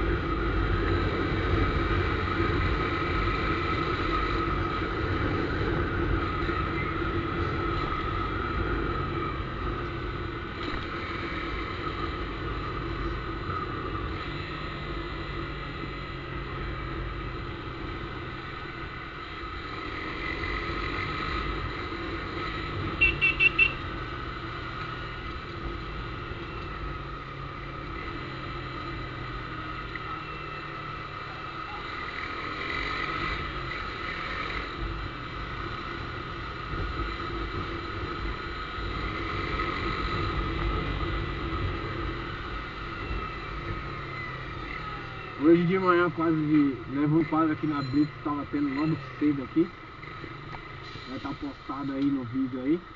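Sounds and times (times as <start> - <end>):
motorcycle running: 0.0 - 52.9
high-pitched beeps: 47.7 - 49.1.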